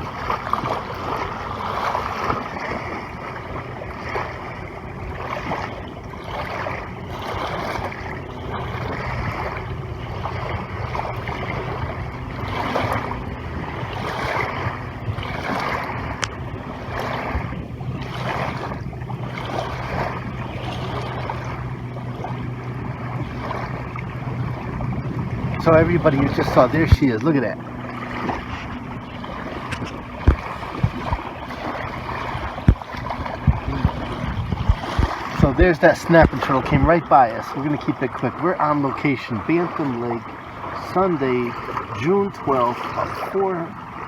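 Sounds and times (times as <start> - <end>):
gusty wind: 0.0 - 39.3
lapping water: 0.0 - 44.0
steady low hum: 0.0 - 44.0.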